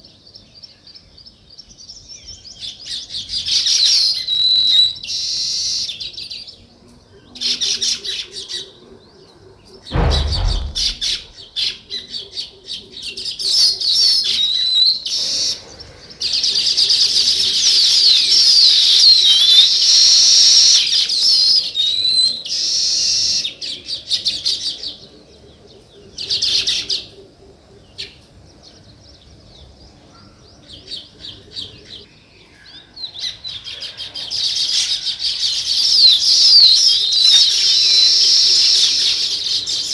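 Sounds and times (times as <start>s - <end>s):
low thump: 9.9s - 11.4s.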